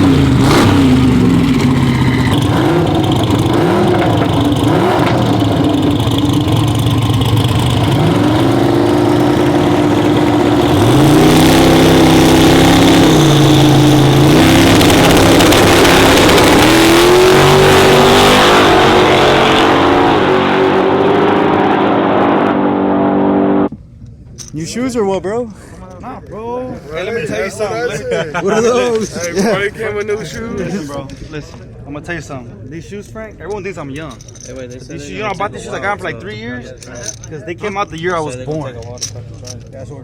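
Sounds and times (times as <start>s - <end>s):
truck engine revving: 0.0s - 23.7s.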